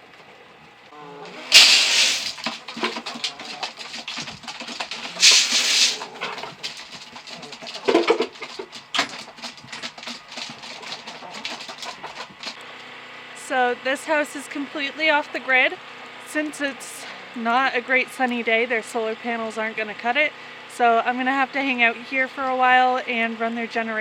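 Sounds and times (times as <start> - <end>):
chickens clucking: 1.3 - 12.6
scraping rustling bursts: 1.3 - 12.6
clicks and knocks: 1.5 - 12.6.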